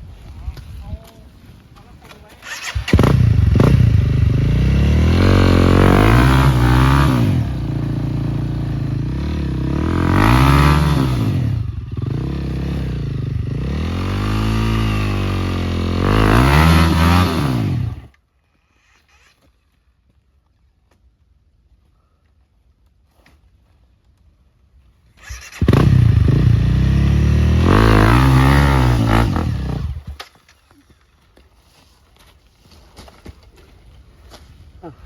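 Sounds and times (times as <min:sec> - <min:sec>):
motorcycle engine revving: 0:02.4 - 0:18.1, 0:25.2 - 0:30.2.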